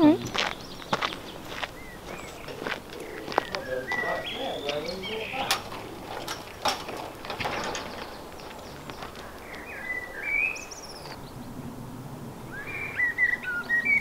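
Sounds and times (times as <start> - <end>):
songbird chirping: 0.0 - 11.8, 12.4 - 14.0
outdoor background noise: 0.0 - 14.0.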